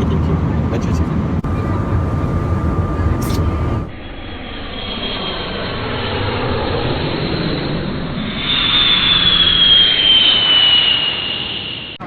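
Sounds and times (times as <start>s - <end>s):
high engine whine: 1.3s - 4.1s
airliner engine rush: 1.3s - 12.0s.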